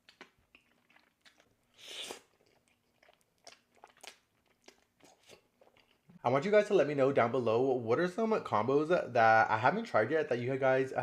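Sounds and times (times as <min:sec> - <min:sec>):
person chewing crunchy food: 0:00.0 - 0:06.2.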